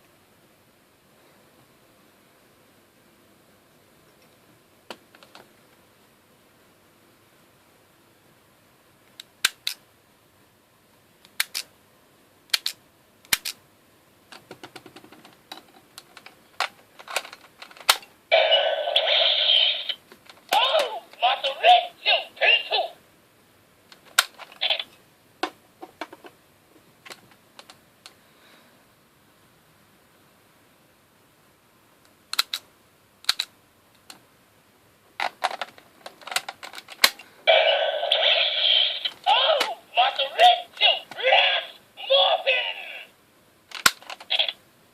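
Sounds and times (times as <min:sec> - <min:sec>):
plastic clicks of toy batteries: 0:09.1 - 0:09.8, 0:11.2 - 0:11.7, 0:12.5 - 0:13.6, 0:32.3 - 0:34.2, 0:43.7 - 0:44.6.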